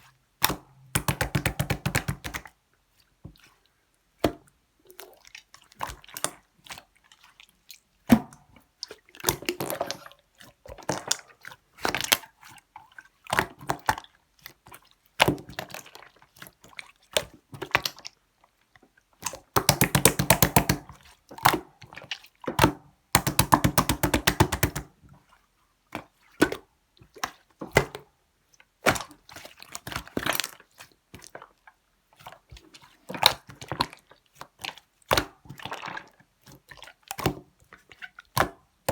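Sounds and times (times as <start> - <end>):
slime squelching and popping: 0.4 - 2.5, 19.2 - 21.7, 22.6 - 24.9.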